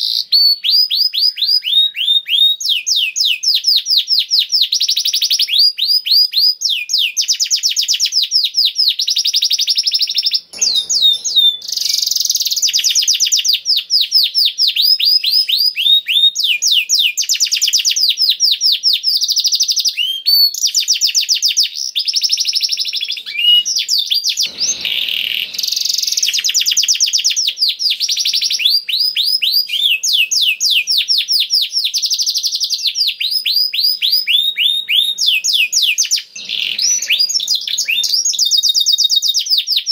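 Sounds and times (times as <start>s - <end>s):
canary singing rapid trills: 9.0s - 39.7s.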